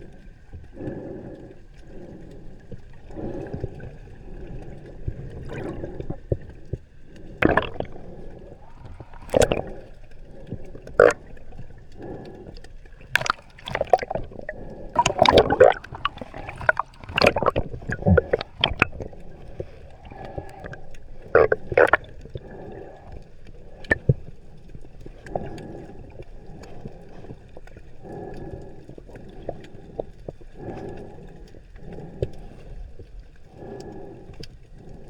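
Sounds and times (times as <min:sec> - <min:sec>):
water gurgling and sloshing: 0:00.0 - 0:35.0
sharp splashy clicks: 0:04.8 - 0:31.2.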